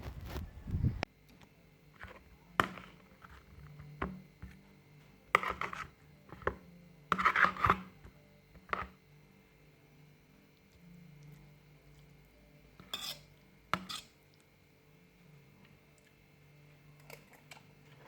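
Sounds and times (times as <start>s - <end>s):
utensil scraping cookware: 7.1s - 8.0s, 12.8s - 14.2s.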